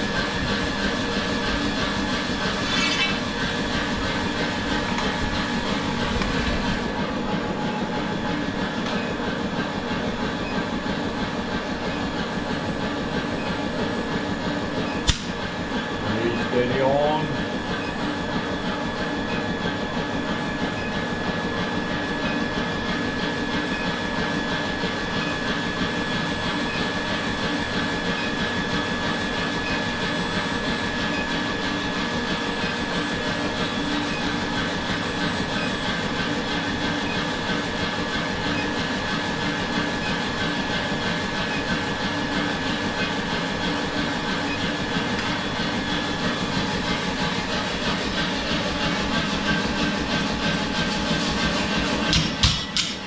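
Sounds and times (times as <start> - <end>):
workshop machinery motor whine: 0.0 - 53.0
sharp click: 15.0 - 15.4.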